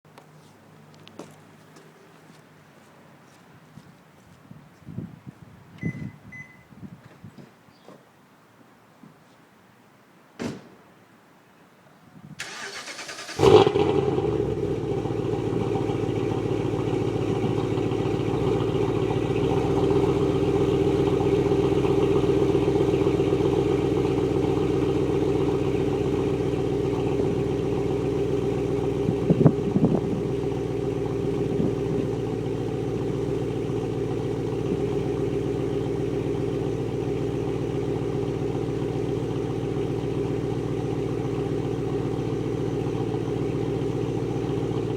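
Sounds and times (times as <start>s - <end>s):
car engine starting and idling: 12.4s - 44.9s.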